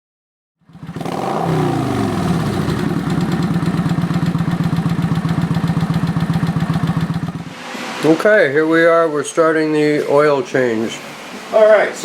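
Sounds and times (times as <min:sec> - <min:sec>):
motorcycle engine idling: 0:00.6 - 0:07.6.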